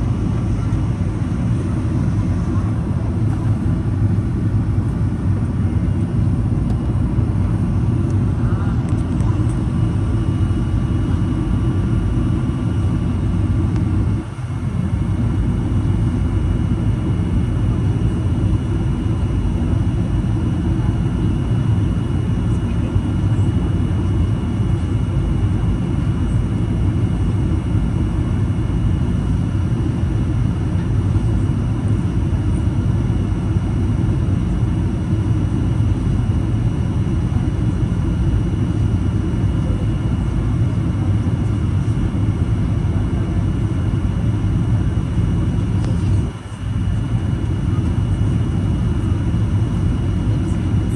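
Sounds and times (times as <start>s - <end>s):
airplane cabin engine rumble: 0.0s - 50.9s.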